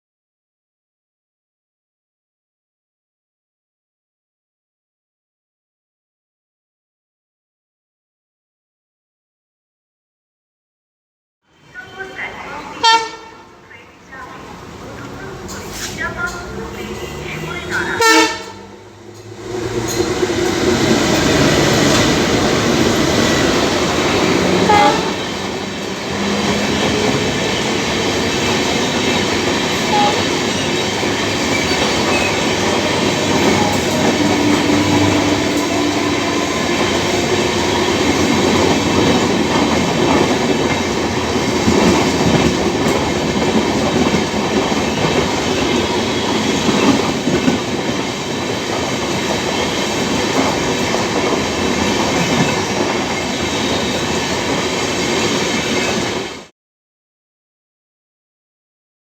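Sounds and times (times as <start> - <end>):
train rumbling past: 11.5 - 56.5.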